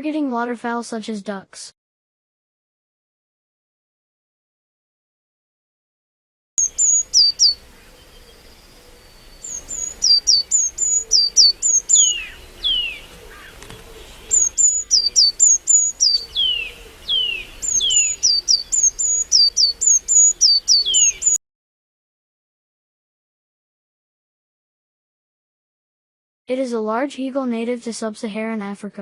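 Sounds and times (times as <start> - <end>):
bird chirping and whistling: 6.6 - 13.1, 14.0 - 21.4.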